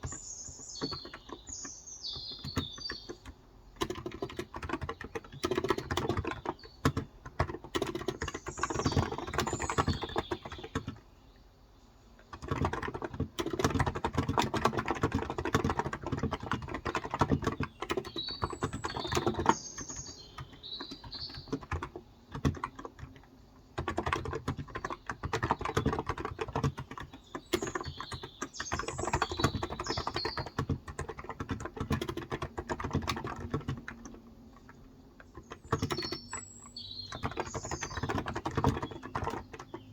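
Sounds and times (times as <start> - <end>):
fast typing on keyboard: 0.0 - 11.1, 12.2 - 39.9
birds chirping: 0.0 - 39.9.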